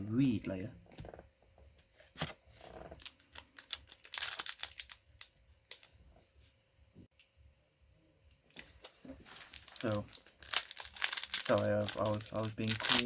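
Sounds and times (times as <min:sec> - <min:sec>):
cards rustling: 0:02.1 - 0:05.9, 0:08.6 - 0:13.0.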